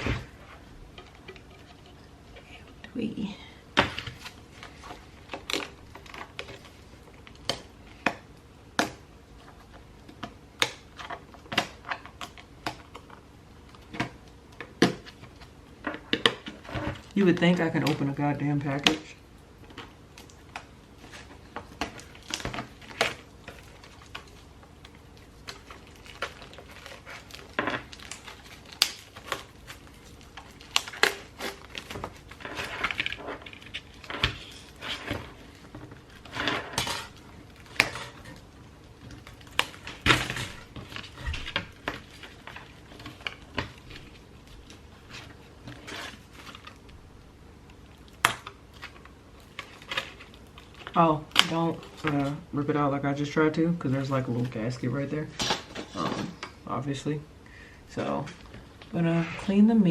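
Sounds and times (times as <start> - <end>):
hands tearing packaging: 3.8 - 47.0, 47.6 - 52.5.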